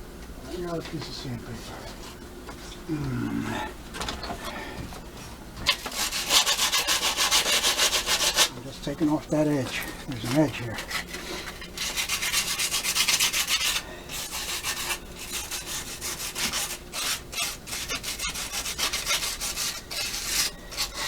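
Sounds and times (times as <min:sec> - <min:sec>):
sandpaper scratching on metal: 0:05.8 - 0:08.5, 0:10.2 - 0:21.0.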